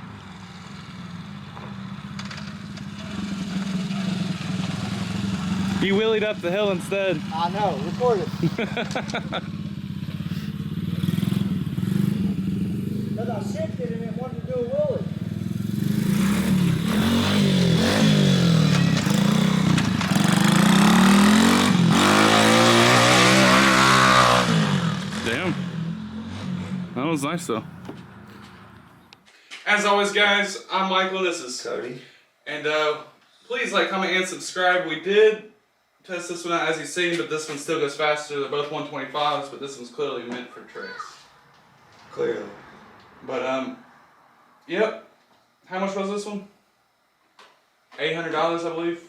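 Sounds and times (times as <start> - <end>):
small pit bike engine running: 0.0 - 29.0.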